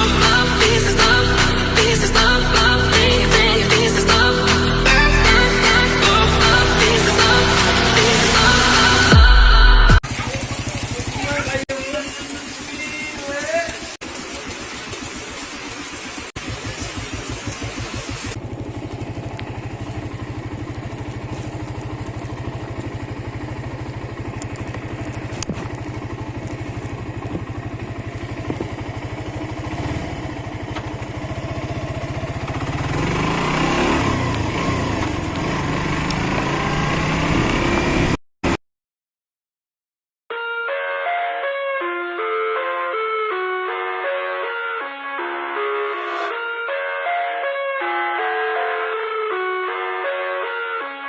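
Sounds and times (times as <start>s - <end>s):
motorcycle engine revving: 0.0s - 38.2s.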